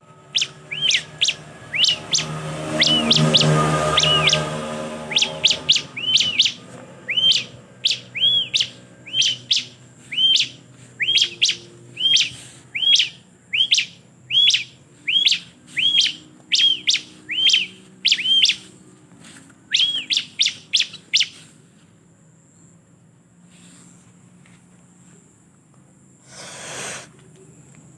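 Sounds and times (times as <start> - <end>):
bird chirping: 0.0 - 18.8, 19.7 - 21.5.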